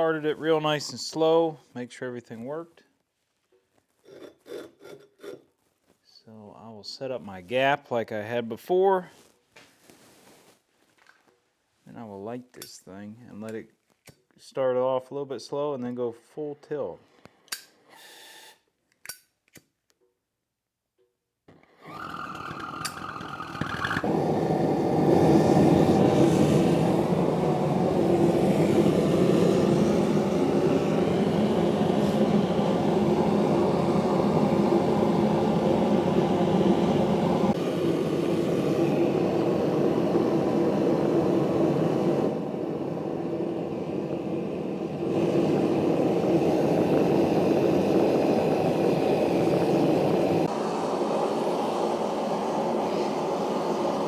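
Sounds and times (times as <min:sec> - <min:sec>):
gas burner rushing: 0:21.5 - 0:54.0.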